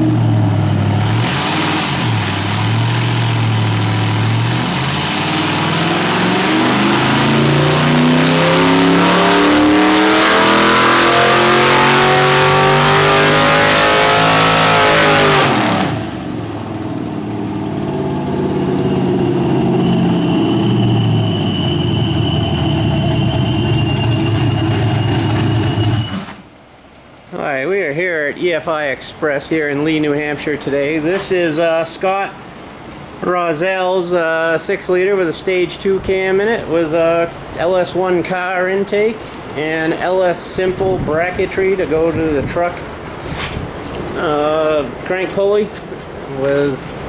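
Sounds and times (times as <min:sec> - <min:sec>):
engine revving at full throttle: 0:00.0 - 0:26.4
high whine: 0:00.0 - 0:26.5.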